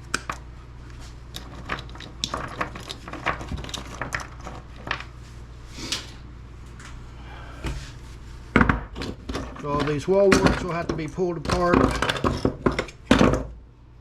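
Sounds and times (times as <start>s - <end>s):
steady low hum: 0.0s - 14.0s
plastic objects clicking and knocking: 1.3s - 5.0s.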